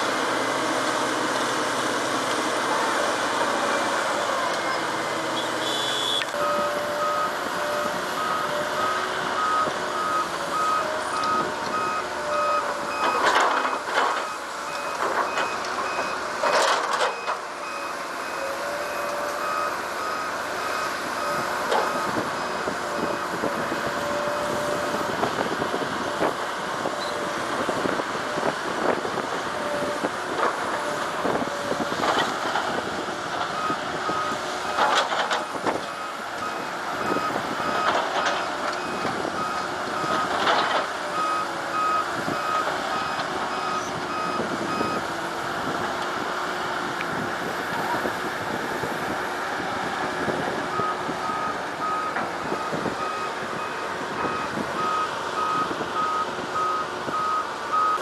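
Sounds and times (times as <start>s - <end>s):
diesel machine running: 0.0s - 58.0s
reversing alarm beeping: 5.4s - 23.3s.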